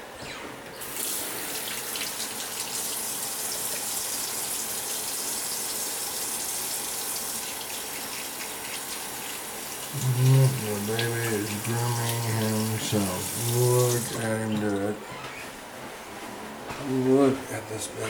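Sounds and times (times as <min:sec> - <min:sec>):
running water rushing: 0:00.8 - 0:14.8.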